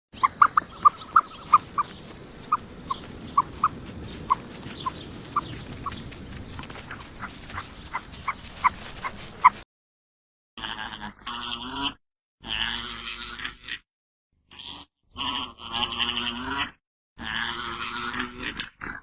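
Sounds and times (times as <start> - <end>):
small animal squeaking: 0.2 - 6.0.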